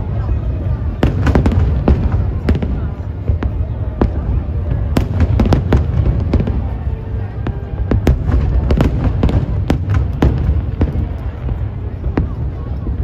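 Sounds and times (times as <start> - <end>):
fireworks bangs: 0.7 - 13.0.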